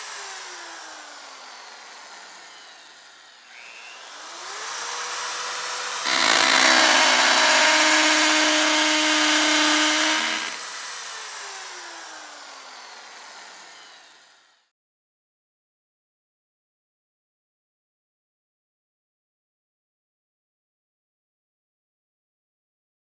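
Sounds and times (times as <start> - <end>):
electric drill running: 0.0 - 14.5
drill motor winding down: 0.0 - 14.6.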